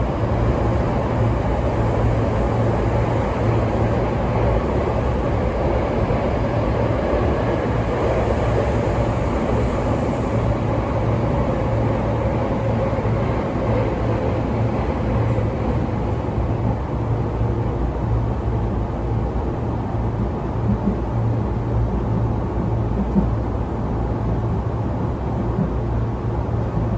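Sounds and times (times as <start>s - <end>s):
electric train wheels rumbling: 0.0s - 19.0s
faint train tone: 7.7s - 13.4s.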